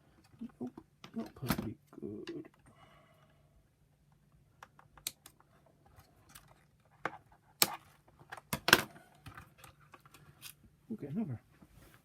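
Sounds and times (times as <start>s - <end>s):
plastic parts clicking and snapping: 4.6s - 5.5s.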